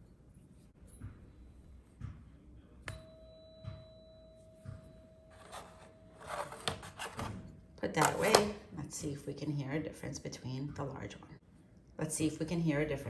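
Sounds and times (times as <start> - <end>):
tuning fork pure tone ringing: 2.8 - 6.2
tuning fork struck with mallet: 2.9 - 5.3.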